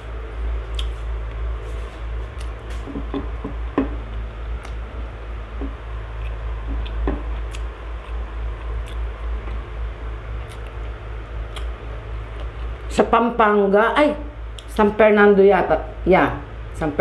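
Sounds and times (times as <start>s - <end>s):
steady low hum: 0.0s - 17.0s
person chewing softly: 0.5s - 3.4s, 4.0s - 12.9s, 14.5s - 14.7s.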